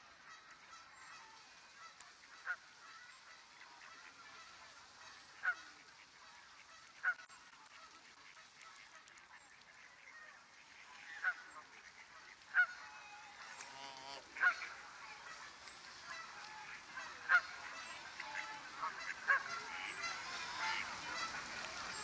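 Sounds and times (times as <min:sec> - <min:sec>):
faint steady hiss: 0:00.0 - 0:22.0
birds calling: 0:09.8 - 0:22.0.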